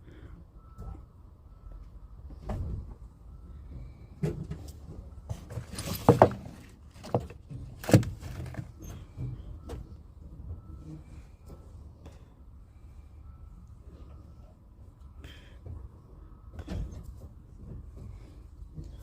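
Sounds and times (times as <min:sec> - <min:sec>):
irregular knocks and clatter: 0:03.8 - 0:09.8.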